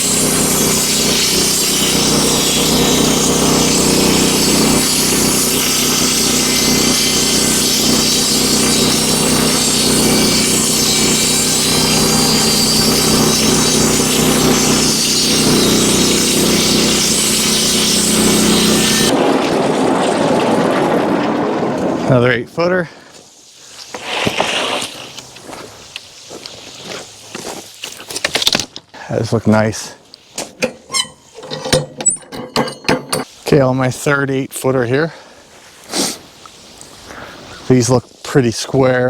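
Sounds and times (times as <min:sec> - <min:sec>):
band saw blade cutting wood: 0:00.0 - 0:19.1, 0:30.4 - 0:33.4
sawmill engine running: 0:00.0 - 0:19.3, 0:30.6 - 0:33.3.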